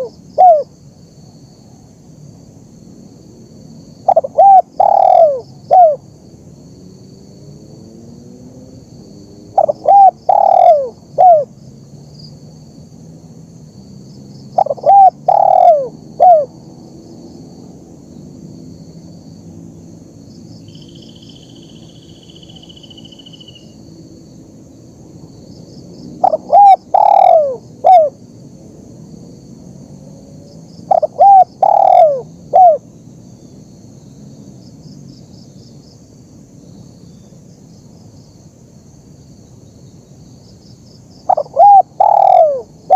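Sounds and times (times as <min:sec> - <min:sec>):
dove cooing: 0:00.0 - 0:00.7, 0:04.0 - 0:06.0, 0:09.5 - 0:11.5, 0:14.6 - 0:16.5, 0:26.2 - 0:28.2, 0:30.9 - 0:32.8, 0:41.3 - 0:42.9.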